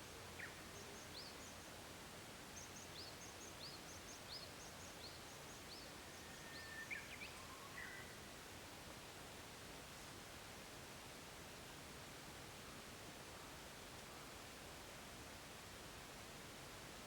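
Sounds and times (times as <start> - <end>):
steady soft hiss: 0.0 - 17.0.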